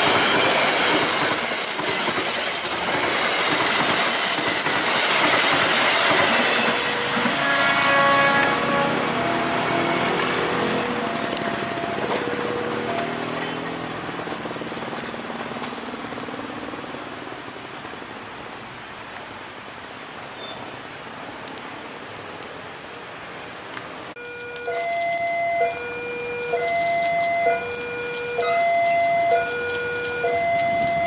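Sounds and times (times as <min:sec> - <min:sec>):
train wheels on rails: 0:00.0 - 0:18.1, 0:24.5 - 0:31.0
heavy rain hissing: 0:00.0 - 0:24.2.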